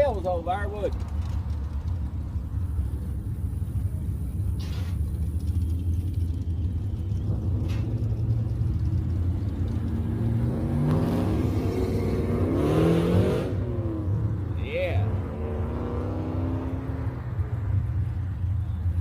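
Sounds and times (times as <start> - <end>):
car engine rumbling and revving: 0.0 - 19.0.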